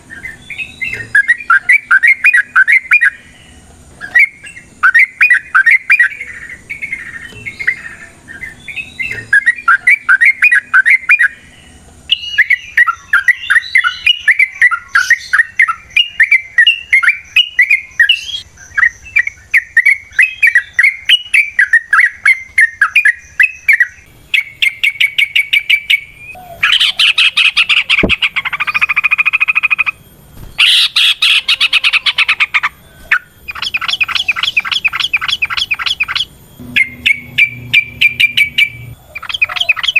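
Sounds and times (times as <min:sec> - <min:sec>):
bulbul singing chattering phrases: 0:00.0 - 0:39.9
harsh buzzing bird rattles: 0:24.4 - 0:39.9.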